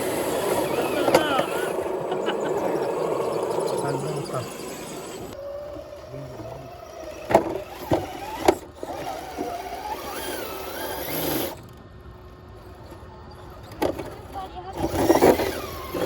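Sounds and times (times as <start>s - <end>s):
small electric motor whining: 0.0s - 11.8s, 14.7s - 16.0s.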